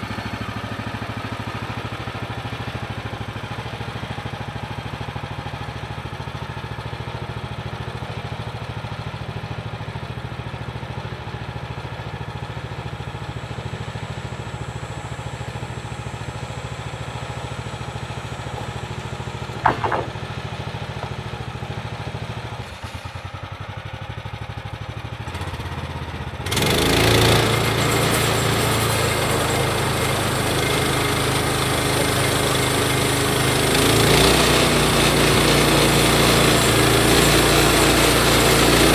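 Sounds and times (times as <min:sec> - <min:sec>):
gas engine idling: 0:13.1 - 0:22.5.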